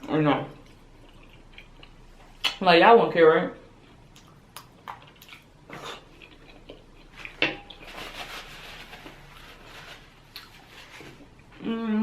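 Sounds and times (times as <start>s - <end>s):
chewing: 0.5s - 2.6s, 3.8s - 7.9s
wet mouth clicks and smacks: 4.1s - 5.5s.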